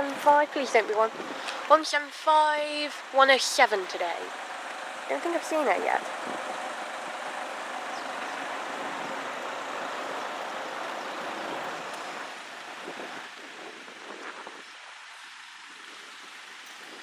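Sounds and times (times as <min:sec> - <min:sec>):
diesel train rolling past: 0:00.0 - 0:13.4.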